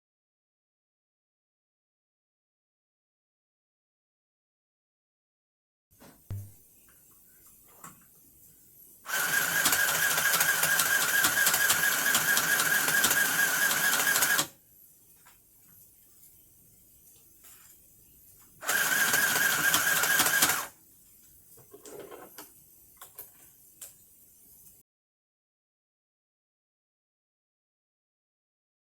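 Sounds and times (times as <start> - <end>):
sewing machine stitching: 9.1 - 14.5, 18.6 - 20.7.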